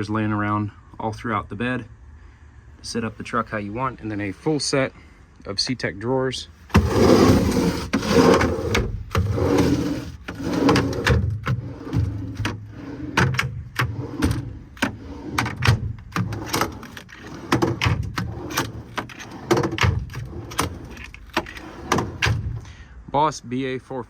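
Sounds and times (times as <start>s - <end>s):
metal drawers clacking and rattling: 6.7s - 22.6s.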